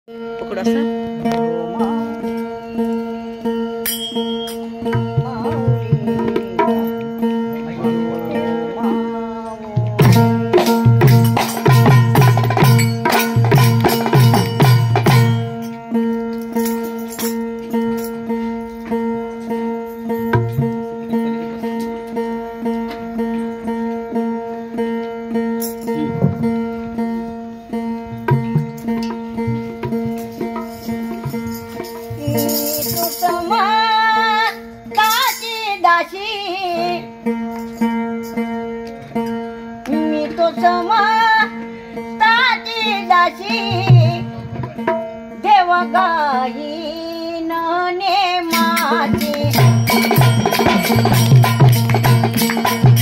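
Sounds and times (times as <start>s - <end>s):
single-string lute plucked: 0.1s - 11.9s, 17.4s - 32.4s
heavy drum beats: 4.3s - 6.9s, 9.7s - 15.6s, 25.9s - 27.0s, 48.5s - 53.0s
woman singing with vibrato: 32.0s - 37.2s, 39.9s - 44.5s, 45.3s - 50.2s.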